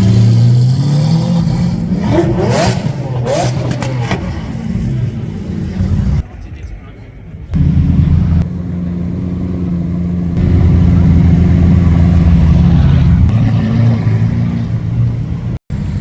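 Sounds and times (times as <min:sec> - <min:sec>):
car engine running: 0:07.6 - 0:16.0.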